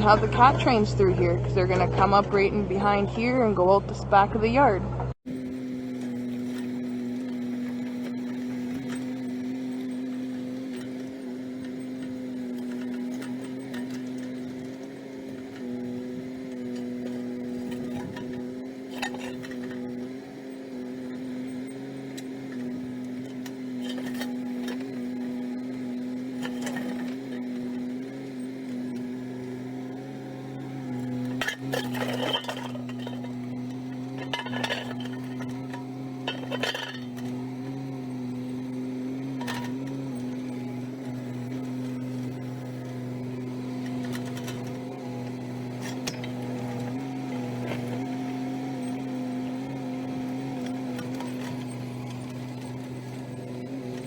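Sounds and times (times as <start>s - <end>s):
excavator engine running: 0.0s - 54.0s
steel bucket clanking on rocks: 16.7s - 19.8s, 31.2s - 37.4s.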